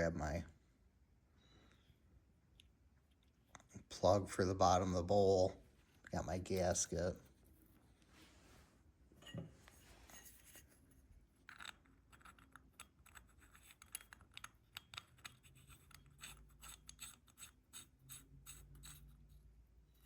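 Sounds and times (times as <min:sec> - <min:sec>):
small metal parts clicking: 0:11.4 - 0:19.1.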